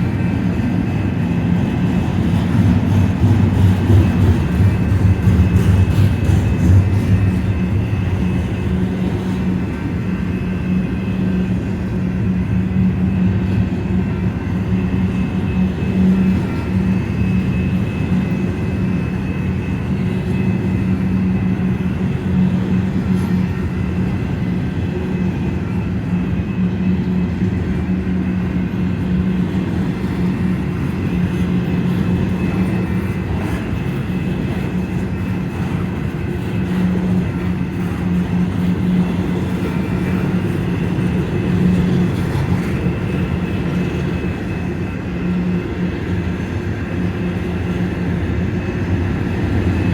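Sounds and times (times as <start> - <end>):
freight train rumbling past: 0.0 - 49.9.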